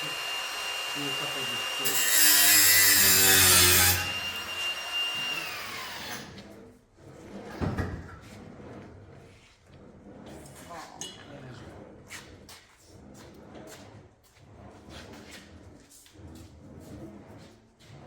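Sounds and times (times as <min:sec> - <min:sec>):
power tool motor whining: 0:00.0 - 0:06.3
harsh metal grinding: 0:00.0 - 0:06.5.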